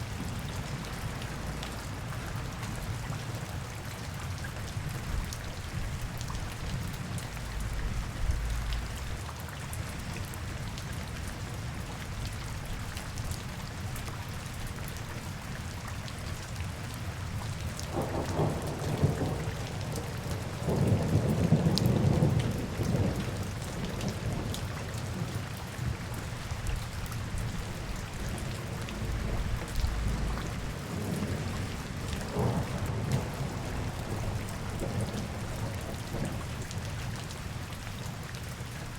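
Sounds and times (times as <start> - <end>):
rain on hard surfaces: 0.0 - 38.9
deep rumble: 7.4 - 9.2, 28.9 - 30.7.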